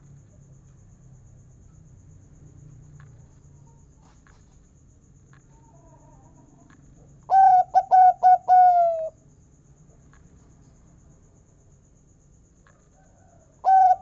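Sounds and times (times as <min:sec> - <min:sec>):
dove cooing: 0:07.3 - 0:09.2, 0:13.6 - 0:14.0.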